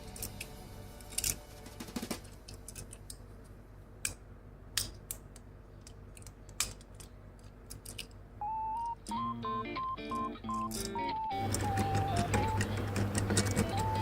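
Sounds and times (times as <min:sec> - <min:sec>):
toy cars clicking and tapping: 0:10.5 - 0:14.0.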